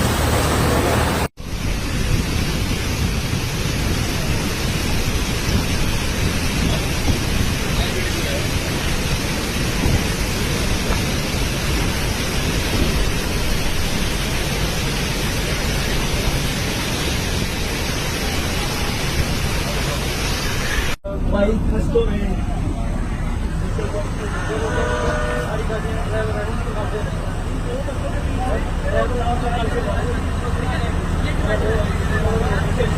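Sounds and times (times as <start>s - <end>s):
heavy rain: 0.0s - 32.9s
strong wind buffeting microphone: 1.0s - 23.7s.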